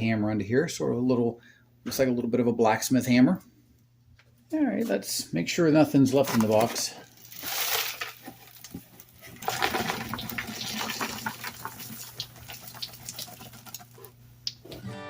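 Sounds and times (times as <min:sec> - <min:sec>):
hands rummaging in cardboard box: 0:06.2 - 0:11.5.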